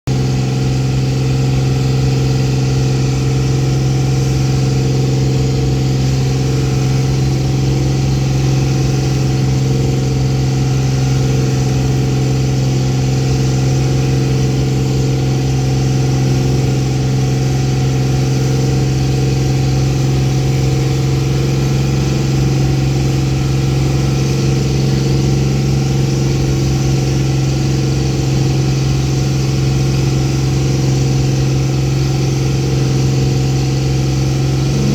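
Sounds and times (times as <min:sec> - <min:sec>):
boat engine droning: 0:00.1 - 0:34.9.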